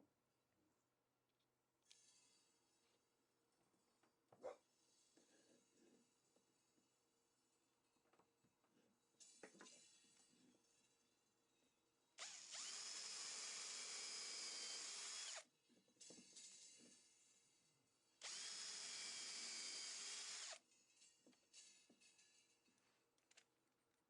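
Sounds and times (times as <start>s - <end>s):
power drill running: 12.2s - 15.4s, 18.2s - 20.6s.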